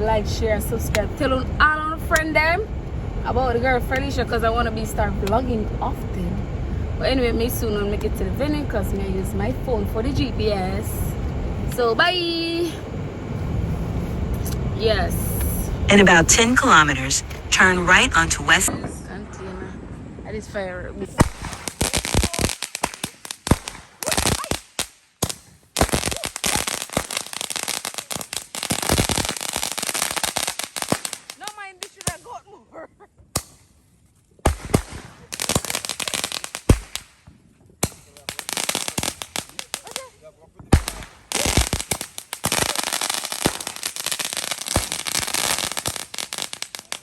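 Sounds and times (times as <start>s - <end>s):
firecrackers banging: 21.1s - 32.3s, 34.4s - 47.0s
rapid crackling fireworks: 21.1s - 32.4s, 34.4s - 47.0s.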